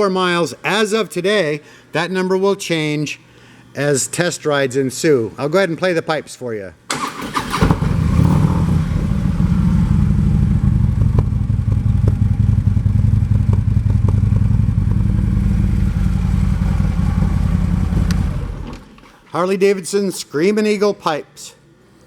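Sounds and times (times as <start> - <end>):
motorcycle engine idling: 7.8 - 18.7.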